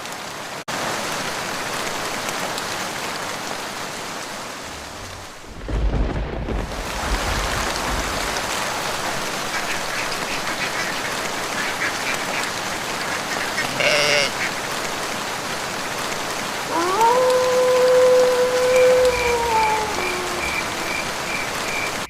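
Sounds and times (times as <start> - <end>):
steady rain in forest: 0.0 - 22.0
short quack-like call: 13.3 - 14.4.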